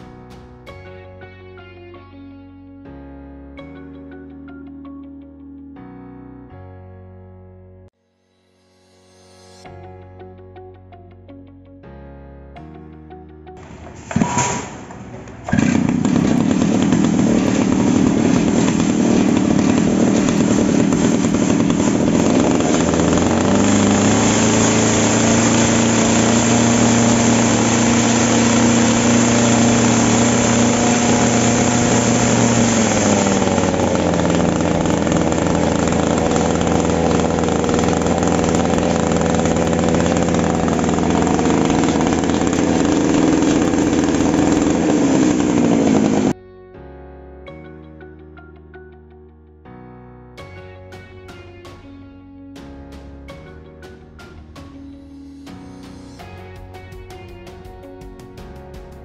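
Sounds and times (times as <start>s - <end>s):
earth auger engine revving: 13.6s - 46.4s.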